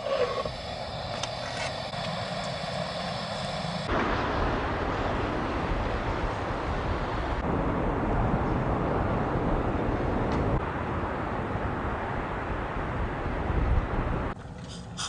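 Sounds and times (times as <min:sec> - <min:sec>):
strong wind blowing: 0:00.0 - 0:14.4.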